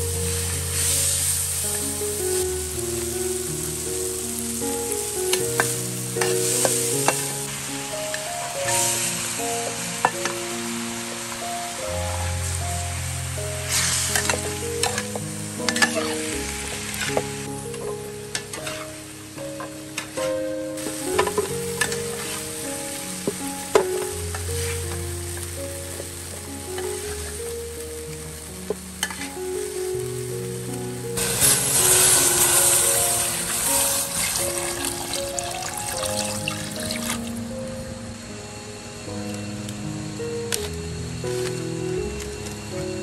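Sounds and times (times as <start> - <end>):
food sizzling in a pan: 0.0 - 37.6
soft background music: 0.0 - 43.0
metal ladle scraping pan: 13.7 - 17.4, 18.3 - 19.0, 29.0 - 29.4, 31.2 - 34.6
water pouring into pot: 31.2 - 37.3.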